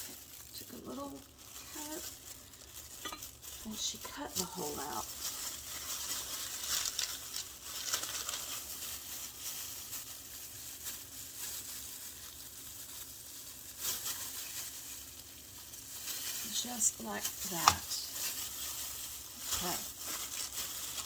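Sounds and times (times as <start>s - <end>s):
food-prep gloves crinkling: 0.0s - 21.0s.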